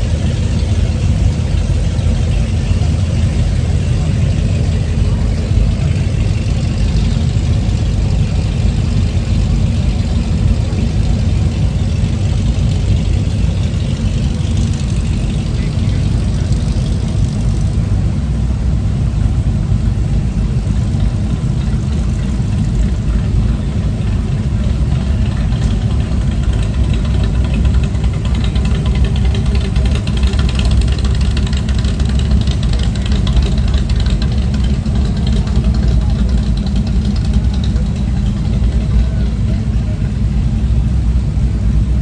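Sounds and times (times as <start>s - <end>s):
vehicle engine idling: 0.0s - 42.0s
faint fast ticking: 20.5s - 39.9s.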